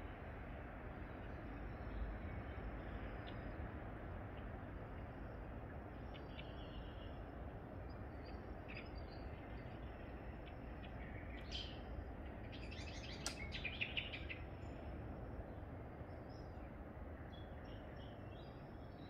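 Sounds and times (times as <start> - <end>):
low background rumble: 0.0 - 19.0
small birds chirping: 6.0 - 19.0.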